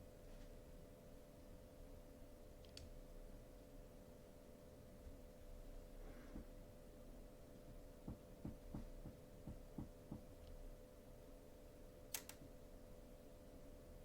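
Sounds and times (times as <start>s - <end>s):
low electrical hum: 0.0s - 14.0s
soft low taps: 7.7s - 10.6s.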